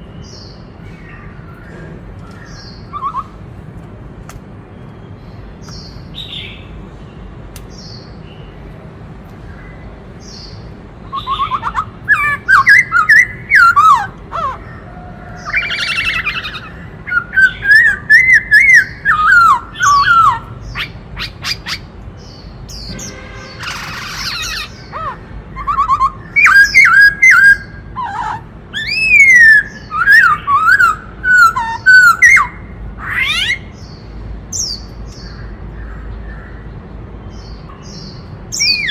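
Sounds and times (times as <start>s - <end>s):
bird warbling and clicking song: 1.5s - 4.5s, 5.6s - 6.3s, 7.5s - 8.0s, 34.6s - 35.5s.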